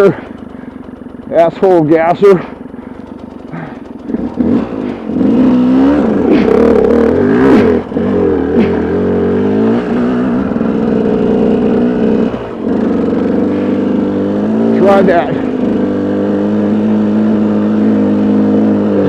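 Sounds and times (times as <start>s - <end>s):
motorcycle engine pulling: 0.0s - 19.0s.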